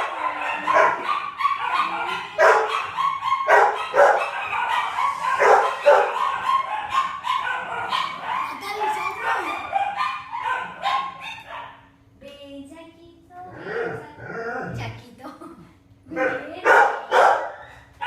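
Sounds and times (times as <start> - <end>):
dogs barking and yipping: 0.0 - 12.0, 16.1 - 18.0.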